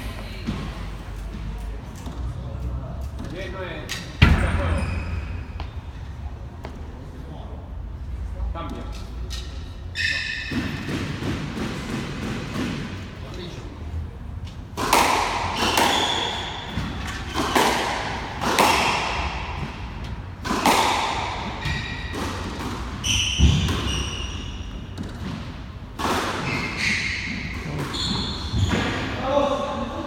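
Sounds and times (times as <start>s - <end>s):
squash ball hits ringing: 4.2s - 5.9s, 14.8s - 25.1s
shoes squeaking on floor: 4.3s - 6.8s, 9.3s - 11.2s, 15.5s - 17.8s, 21.5s - 25.4s, 26.3s - 29.2s.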